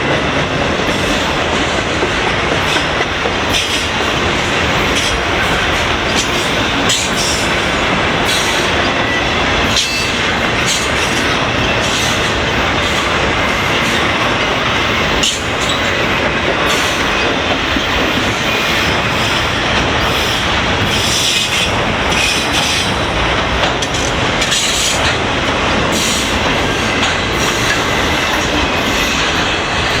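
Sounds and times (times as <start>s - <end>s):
train wheels clattering on rails: 0.0s - 30.0s
high wheel squeal: 16.7s - 23.2s.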